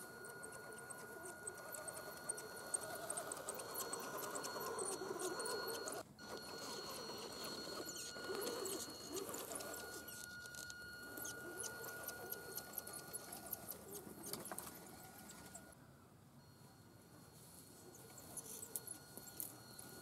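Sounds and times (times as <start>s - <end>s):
electric motor whine: 0.0s - 15.7s
tyres clicking and crackling: 0.2s - 15.7s.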